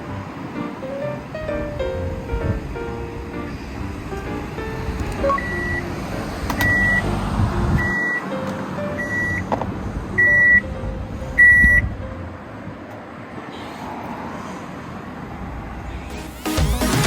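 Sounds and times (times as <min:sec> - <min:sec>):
electronic beeper beeping: 0:05.3 - 0:05.8.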